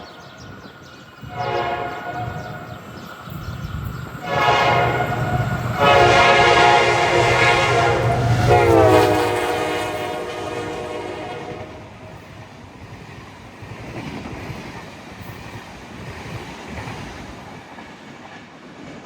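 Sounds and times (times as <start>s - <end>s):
train horn blasts: 1.2s - 2.9s, 4.1s - 12.0s.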